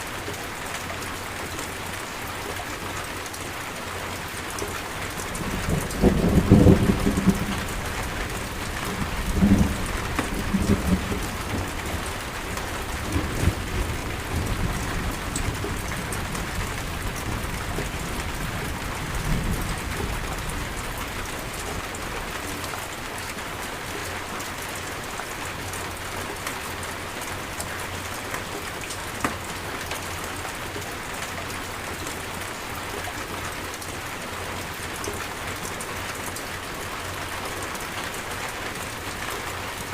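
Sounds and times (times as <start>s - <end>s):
steady rain: 0.0s - 39.9s
thunder rumbling: 5.4s - 22.1s.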